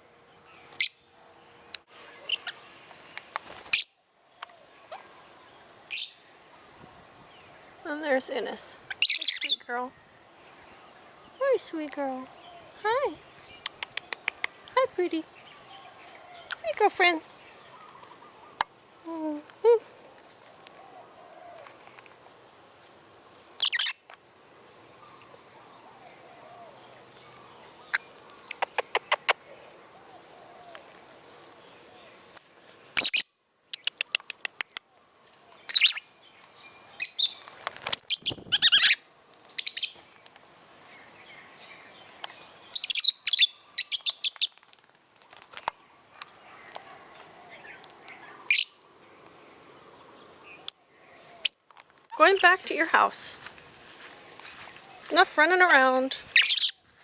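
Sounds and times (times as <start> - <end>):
lovebirds chirping: 0.0 - 22.1, 23.6 - 24.1, 24.7 - 44.8, 45.4 - 56.9
lovebirds chirping shrilly: 0.5 - 1.1, 2.2 - 2.6, 3.7 - 4.0, 5.9 - 6.3, 8.8 - 9.9, 23.6 - 24.0, 32.3 - 34.8, 35.7 - 36.1, 37.0 - 40.1, 41.2 - 44.6, 47.5 - 48.9, 54.4 - 56.8.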